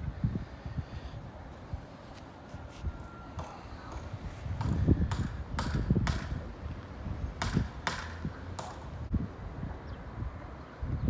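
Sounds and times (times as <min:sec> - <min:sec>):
sharp knocks and taps: 0:03.4 - 0:06.4, 0:07.4 - 0:08.9.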